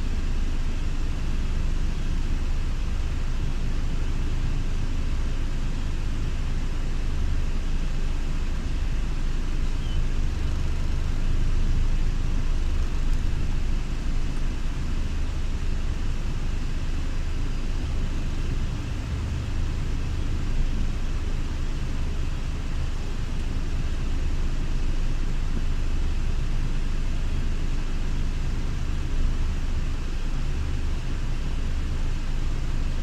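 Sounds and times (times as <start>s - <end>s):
coach engine low rumble: 0.0s - 33.0s.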